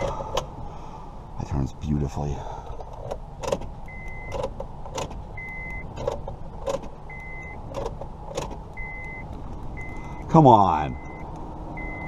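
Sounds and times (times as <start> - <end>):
car warning chime beeping: 3.8 - 4.4, 5.4 - 5.9, 7.1 - 7.7, 8.7 - 12.0.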